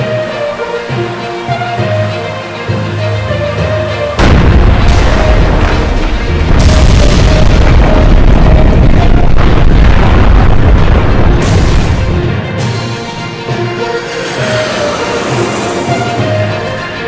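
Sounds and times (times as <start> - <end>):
explosion boom with deep rumble: 4.2 - 12.4
intro music: 11.5 - 17.0.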